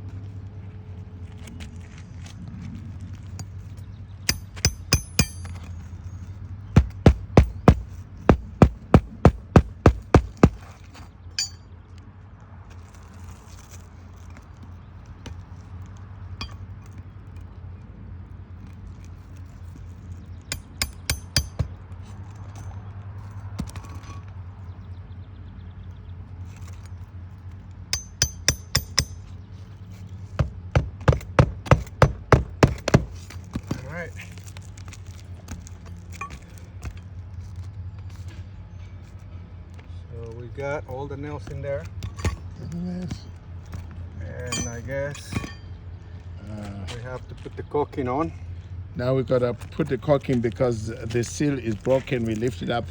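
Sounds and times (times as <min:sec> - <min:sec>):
hammer striking roofing nails: 0:04.3 - 0:05.7, 0:06.8 - 0:10.8, 0:20.5 - 0:21.8, 0:28.0 - 0:29.3, 0:30.4 - 0:33.8.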